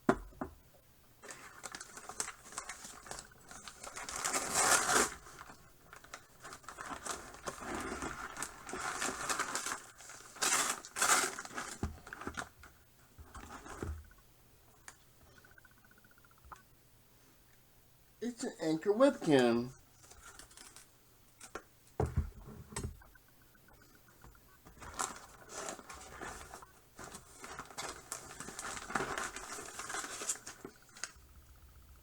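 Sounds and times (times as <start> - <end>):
packaging crinkling and tearing: 1.2 - 12.5, 20.0 - 21.6, 24.8 - 31.2.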